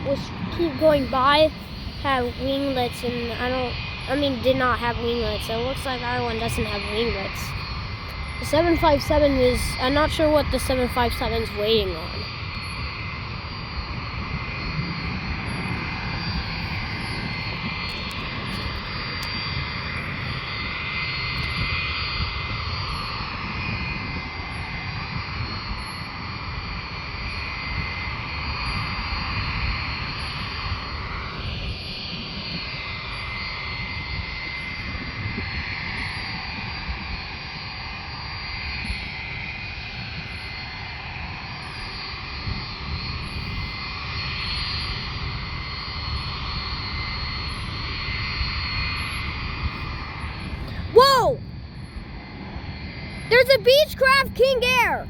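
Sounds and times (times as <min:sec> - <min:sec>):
jet engines whining: 0:00.0 - 0:12.3.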